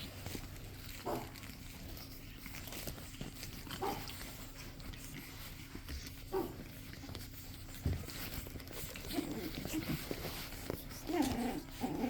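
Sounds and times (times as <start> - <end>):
puppy crying: 8.5 - 12.0.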